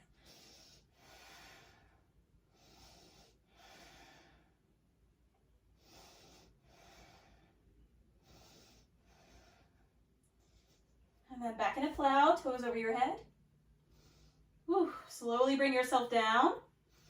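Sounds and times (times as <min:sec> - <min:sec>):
woman breathing softly: 0:00.0 - 0:04.8, 0:05.7 - 0:11.2, 0:13.7 - 0:14.7, 0:16.7 - 0:17.0.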